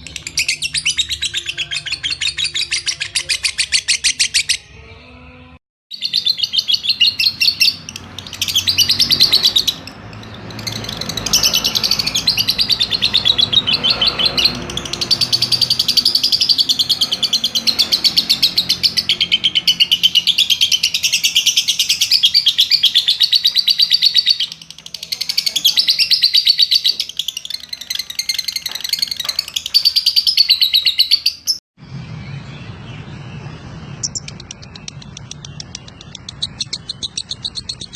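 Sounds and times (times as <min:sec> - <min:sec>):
lovebird shrill chirping rattle: 0:06.0 - 0:31.6.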